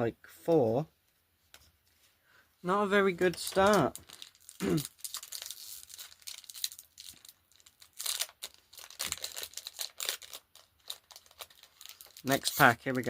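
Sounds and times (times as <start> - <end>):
cards being handled: 3.2 - 7.2
foil wrappers crinkling: 3.3 - 13.0.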